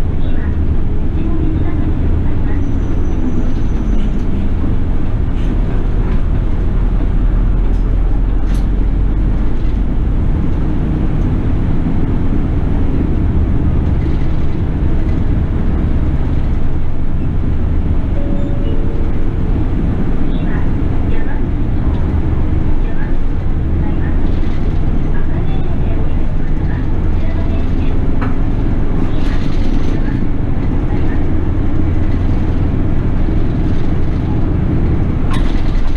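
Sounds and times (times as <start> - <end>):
bus engine and road rumble: 0.0 - 35.9.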